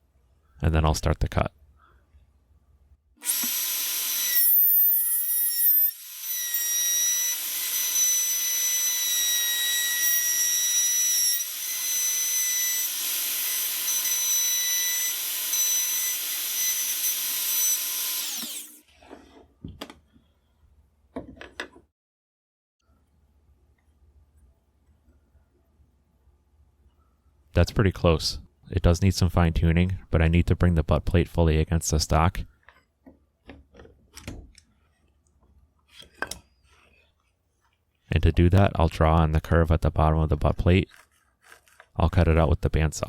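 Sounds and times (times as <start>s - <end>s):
router whining while cutting wood: 3.2s - 18.8s.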